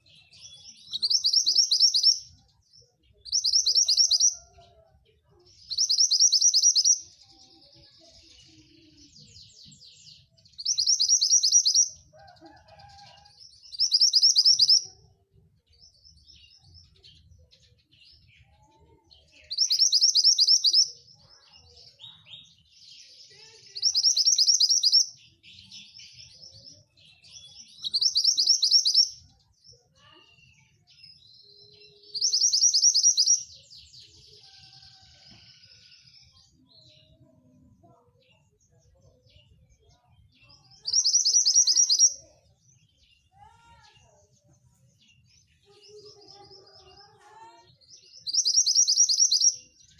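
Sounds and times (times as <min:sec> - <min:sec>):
bird trilling song: 0:00.0 - 0:04.8, 0:05.5 - 0:47.0, 0:47.6 - 0:49.9
bird chirps and chatter: 0:00.0 - 0:49.9.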